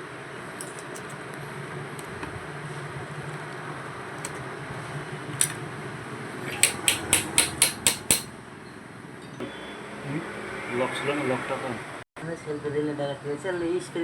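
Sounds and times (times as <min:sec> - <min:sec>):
hand tool tapping metal: 0:06.5 - 0:08.3.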